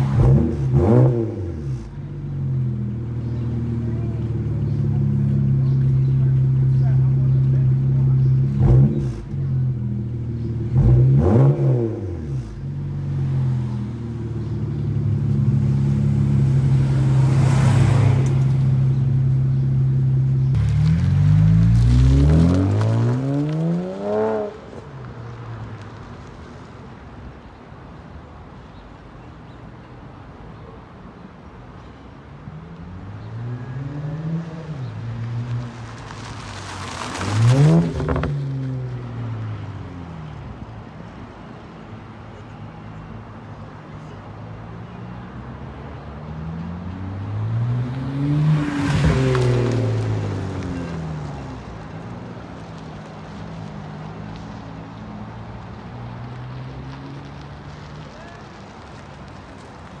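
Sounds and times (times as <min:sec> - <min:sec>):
car engine droning and revving: 0:00.0 - 0:26.6, 0:32.5 - 0:41.7, 0:44.8 - 1:00.0
exhaust crack: 0:00.0 - 0:26.8, 0:35.2 - 0:39.3, 0:47.9 - 1:00.0.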